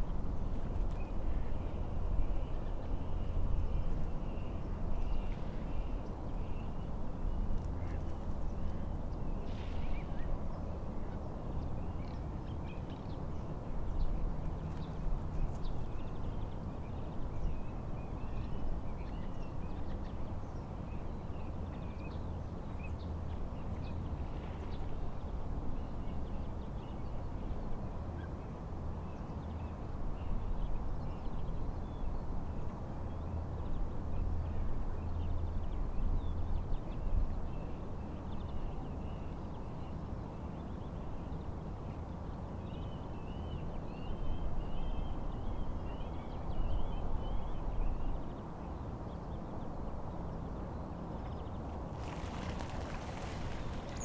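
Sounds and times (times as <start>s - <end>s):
wind: 0.0s - 54.0s
lake waves rushing: 51.9s - 54.0s
small birds chirping: 52.0s - 54.0s.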